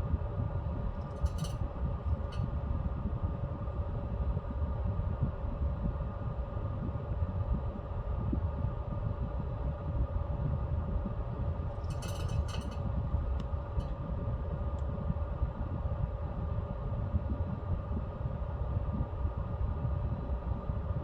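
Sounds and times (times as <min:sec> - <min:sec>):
pellet stove fan hum: 0:00.1 - 0:04.6, 0:09.7 - 0:16.5.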